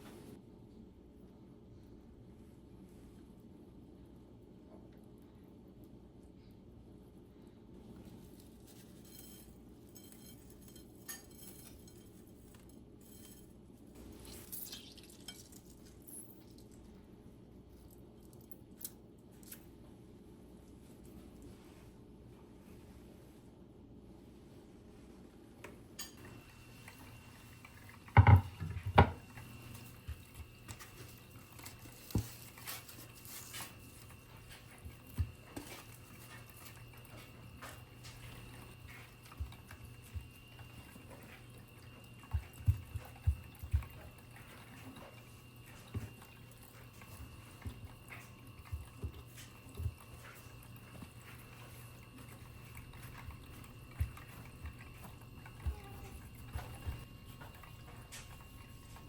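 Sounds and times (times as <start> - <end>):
steady low hum: 0.0 - 59.0
knocks and clicks of objects handled: 28.1 - 29.2.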